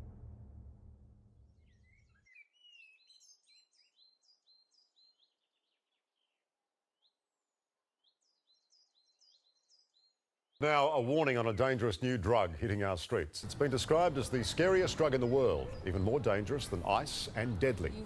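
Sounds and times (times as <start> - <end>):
birds chirping: 1.5 - 18.0
music: 13.4 - 18.0.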